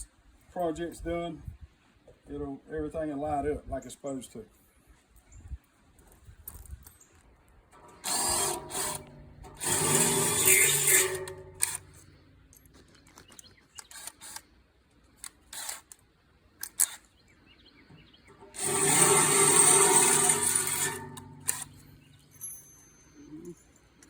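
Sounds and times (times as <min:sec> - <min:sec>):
power drill running: 0:07.8 - 0:12.1, 0:13.9 - 0:14.4, 0:15.5 - 0:15.9, 0:18.4 - 0:22.3.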